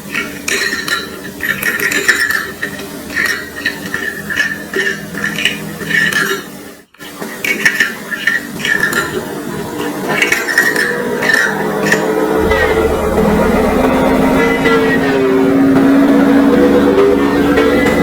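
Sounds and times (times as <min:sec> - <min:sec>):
tableware clinking: 0:00.0 - 0:06.6, 0:07.4 - 0:15.0.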